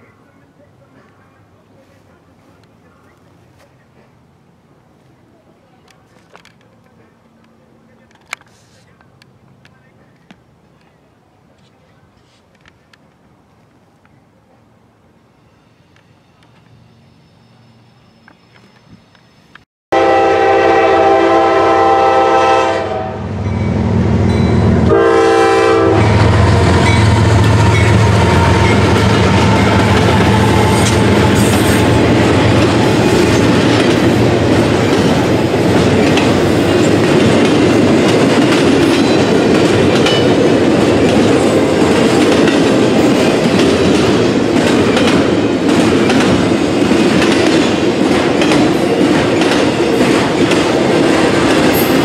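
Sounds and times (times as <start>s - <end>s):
train rumbling past: 14.6s - 52.0s
locomotive horn blasts: 19.9s - 23.4s, 24.5s - 32.6s
wheels clicking over rail joints: 26.7s - 52.0s.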